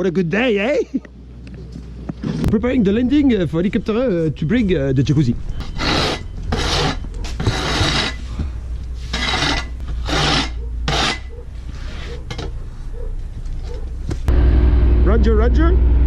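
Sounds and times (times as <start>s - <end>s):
steady low rumble: 1.0s - 5.8s, 12.6s - 16.0s
snow shovel scraping snow: 5.7s - 8.4s, 9.0s - 12.3s.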